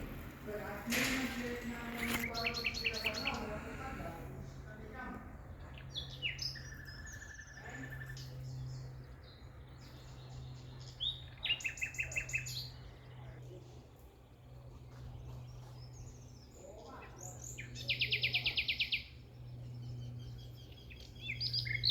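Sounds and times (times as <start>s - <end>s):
steady low hum: 0.0s - 11.4s
birds chirping and trilling: 0.0s - 21.9s.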